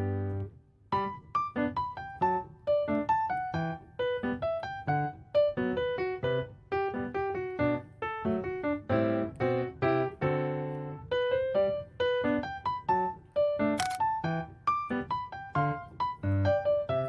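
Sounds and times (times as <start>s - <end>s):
piano melody: 0.0s - 11.9s.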